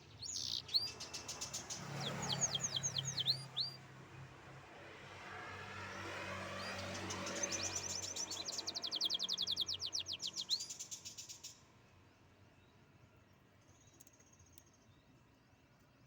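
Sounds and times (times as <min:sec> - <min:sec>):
canary singing: 0:00.2 - 0:03.8, 0:07.4 - 0:10.7.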